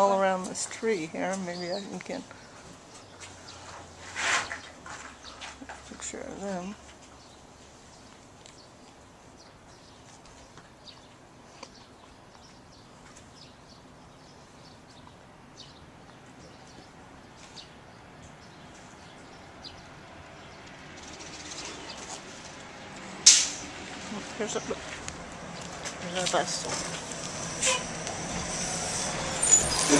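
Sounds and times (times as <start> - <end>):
outdoor background noise: 0.0 - 29.9
small birds chirping: 0.0 - 29.9
approaching vehicle: 16.7 - 29.9.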